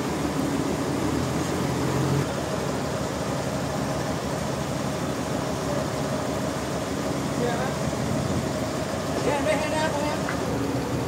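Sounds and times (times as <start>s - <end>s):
sawmill machinery humming: 0.0s - 11.0s.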